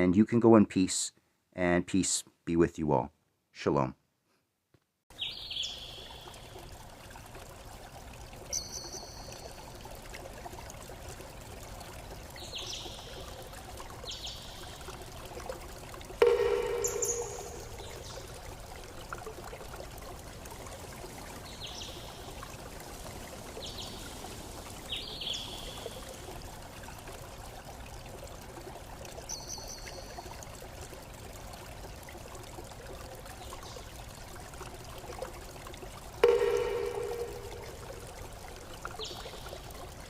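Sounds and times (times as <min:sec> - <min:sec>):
stream running: 0:05.1 - 0:40.0
bell-like chime ringing: 0:16.2 - 0:17.9, 0:36.2 - 0:38.0.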